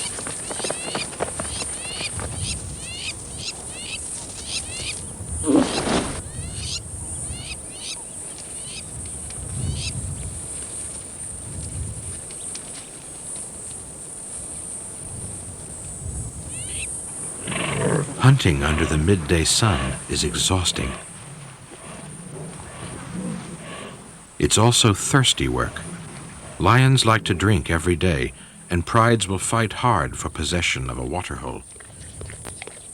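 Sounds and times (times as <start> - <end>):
low animal call: 0.0 - 8.9, 16.5 - 29.0
faint low rumbles: 16.4 - 32.9.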